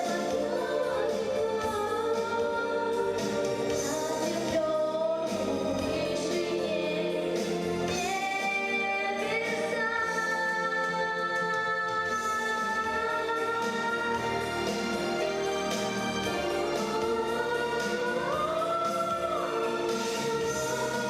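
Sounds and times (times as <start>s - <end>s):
instrumental accompaniment: 0.0s - 21.0s.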